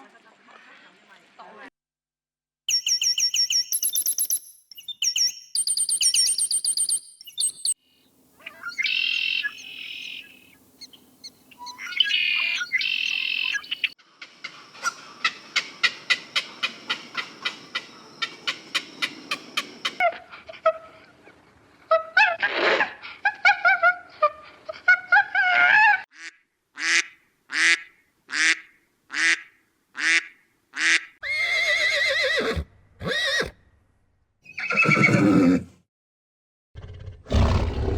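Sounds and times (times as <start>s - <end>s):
bird calls and chirps: 2.7s - 20.0s.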